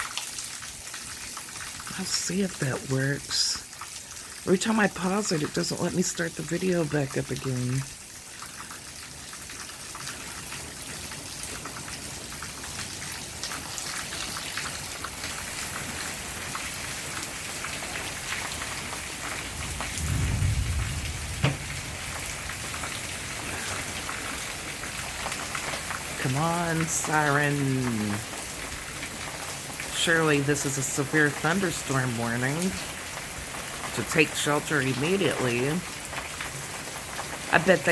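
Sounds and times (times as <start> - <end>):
rain falling: 0.0 - 37.9
brief low rumble: 19.9 - 22.0.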